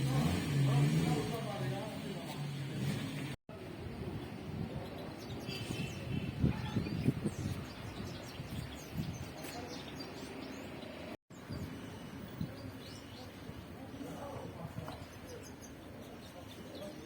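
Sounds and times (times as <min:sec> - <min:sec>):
birds chirping: 0:03.9 - 0:17.0.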